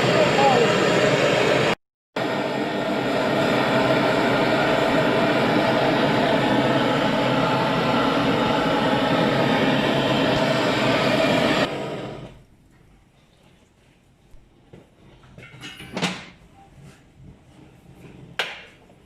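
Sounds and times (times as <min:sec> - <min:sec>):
wheel repair machine running: 0:00.0 - 0:12.4.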